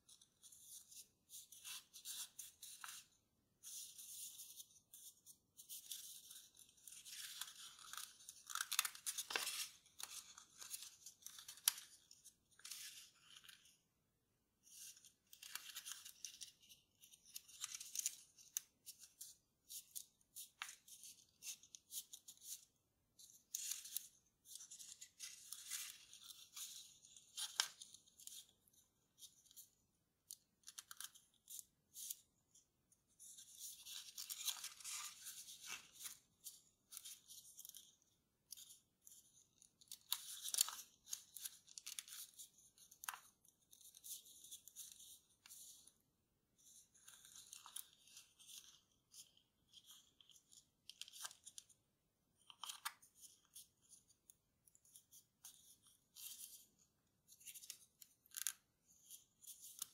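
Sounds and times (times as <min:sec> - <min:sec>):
paper rustling and crinkling: 0:00.1 - 0:13.8, 0:23.2 - 0:29.7, 0:33.2 - 0:46.0, 0:46.6 - 0:51.8.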